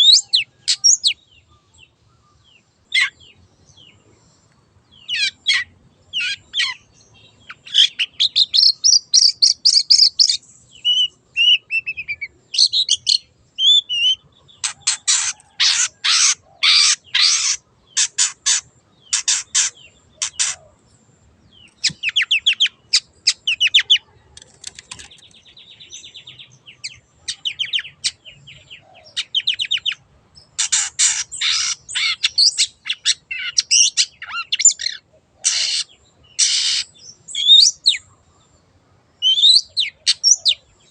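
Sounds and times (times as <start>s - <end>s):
shrike singing: 4.9s - 20.8s.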